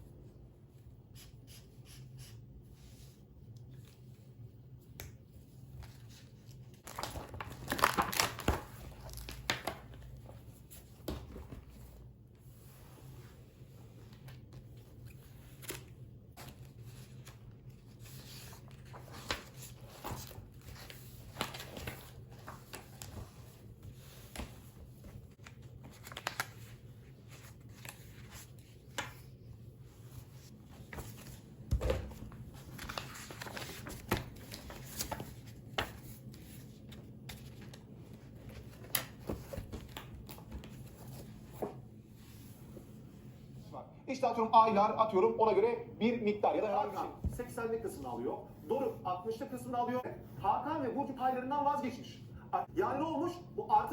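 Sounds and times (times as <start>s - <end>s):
paper rustling: 5.6s - 12.9s, 13.8s - 42.7s.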